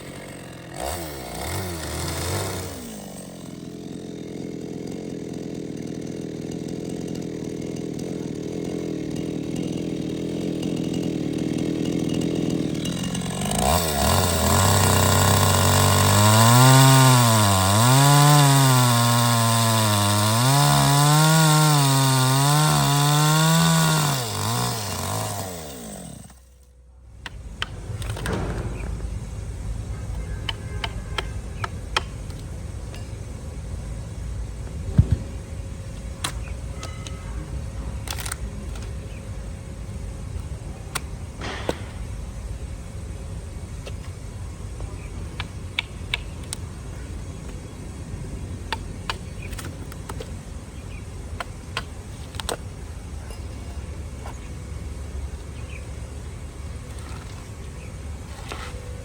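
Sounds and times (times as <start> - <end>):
power tool cutting wood: 0.0 - 26.7.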